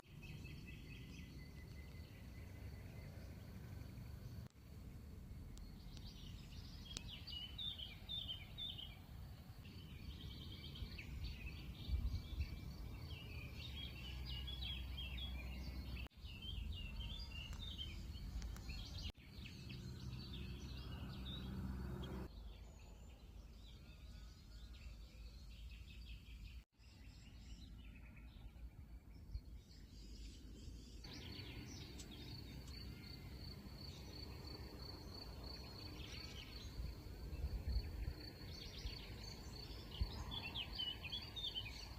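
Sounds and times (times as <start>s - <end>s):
songbirds singing and chirping: 0.0s - 41.9s
low outdoor rumble: 0.1s - 8.2s.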